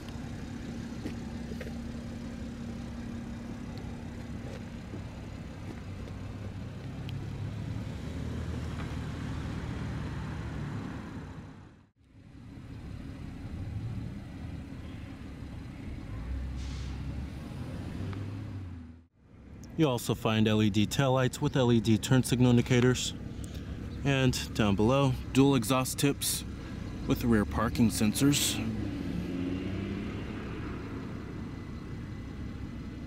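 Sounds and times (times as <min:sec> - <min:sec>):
car engine idling: 0:00.0 - 0:09.0, 0:11.4 - 0:16.9, 0:19.0 - 0:28.7, 0:30.8 - 0:33.0.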